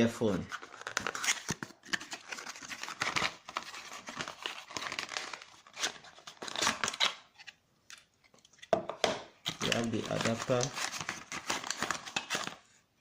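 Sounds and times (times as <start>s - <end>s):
packaging crinkling and rustling: 0.4s - 8.7s, 9.4s - 12.7s.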